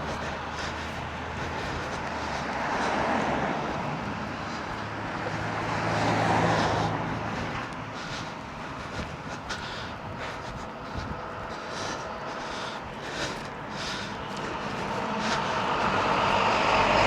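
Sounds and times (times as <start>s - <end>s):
distant engine drone: 0.0s - 17.0s.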